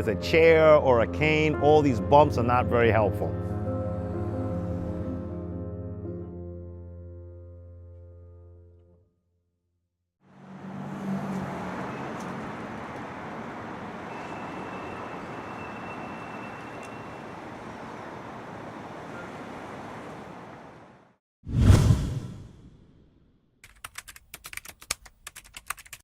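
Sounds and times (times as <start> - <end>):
city street traffic noise: 10.2 - 21.2.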